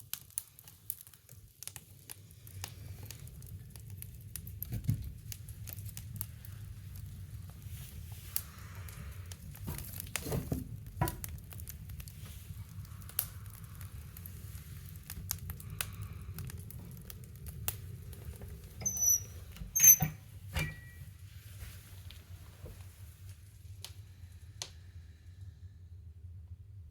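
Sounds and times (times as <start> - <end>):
wood fire crackling and popping: 0.0 - 24.8
low steady rumble: 2.2 - 26.9
short squeaky hisses: 18.8 - 21.0.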